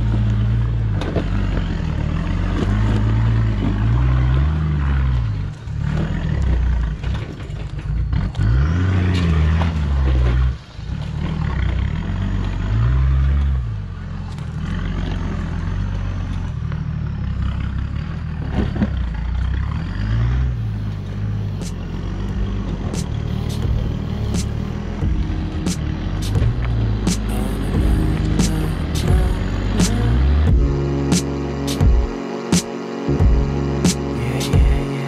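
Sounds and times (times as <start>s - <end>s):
vehicle engine revving: 0.0s - 35.0s.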